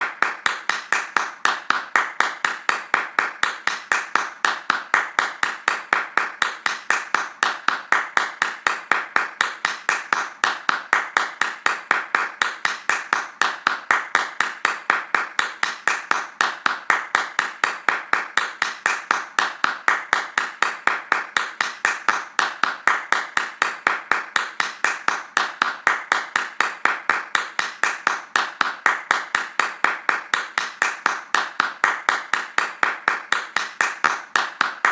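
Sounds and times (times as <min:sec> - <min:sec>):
fast hand clapping: 0:00.0 - 0:34.9.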